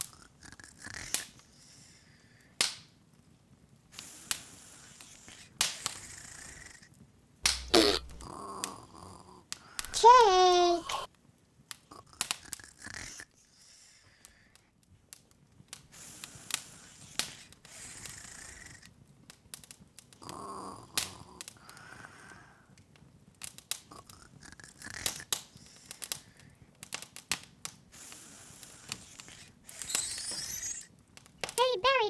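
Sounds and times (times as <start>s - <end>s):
soft fire hiss: 7.4s - 8.4s, 9.8s - 11.1s, 28.0s - 32.0s
wood fire crackling: 7.4s - 8.8s, 19.3s - 32.0s.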